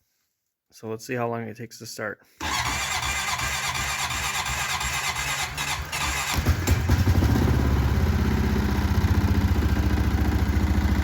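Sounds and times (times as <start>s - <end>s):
electric starter cranking engine: 2.4s - 8.0s
engine fast idle: 2.4s - 11.0s.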